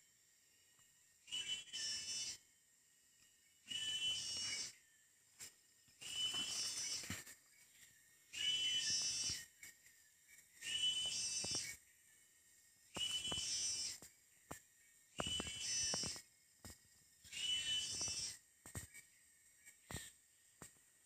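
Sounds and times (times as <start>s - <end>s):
bird whistled call: 1.3s - 2.4s, 3.6s - 4.8s, 8.3s - 9.5s, 10.6s - 11.8s, 12.9s - 14.0s, 17.3s - 18.4s.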